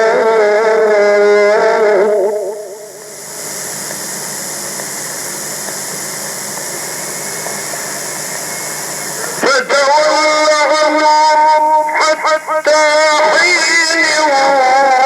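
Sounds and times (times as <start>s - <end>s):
old recording hiss: 0.0s - 15.0s.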